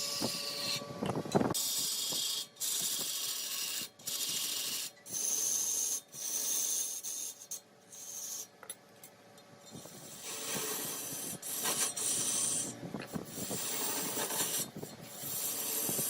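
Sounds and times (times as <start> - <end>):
tool rasping against wood: 10.0 - 16.0.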